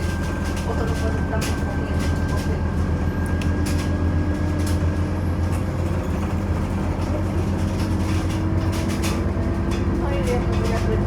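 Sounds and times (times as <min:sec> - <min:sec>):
bus engine droning: 0:00.0 - 0:11.0.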